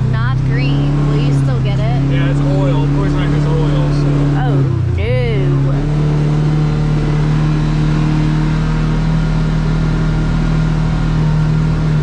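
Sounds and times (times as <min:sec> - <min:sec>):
engine droning steadily: 0:00.0 - 0:12.0.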